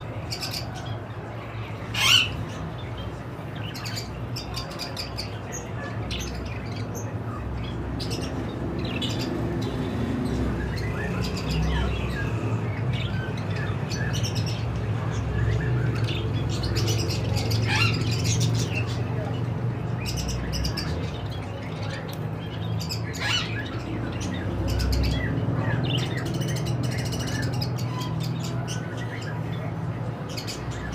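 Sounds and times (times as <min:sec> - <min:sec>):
loud bird squawk: 0:02.0 - 0:02.4
budgerigars chirping: 0:02.0 - 0:29.7.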